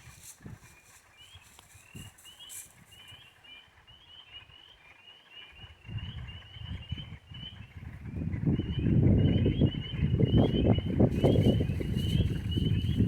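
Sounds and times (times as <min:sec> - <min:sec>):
low microphone rumble: 0:05.6 - 0:13.0.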